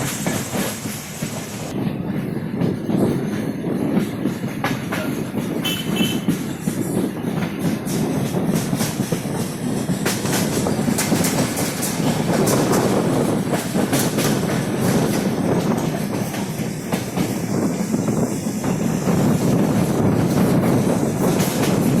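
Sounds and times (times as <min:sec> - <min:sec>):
train coach rumble: 0:00.0 - 0:22.0
wheels clicking over rails: 0:02.6 - 0:22.0.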